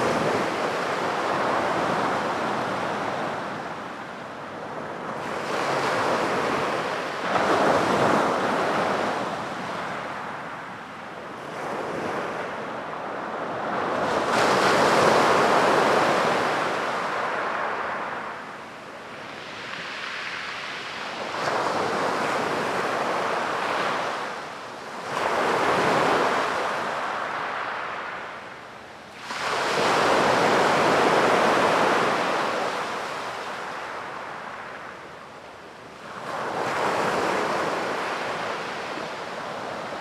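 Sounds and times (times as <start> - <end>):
sea waves breaking on beach: 4.7 - 10.4, 29.1 - 35.1.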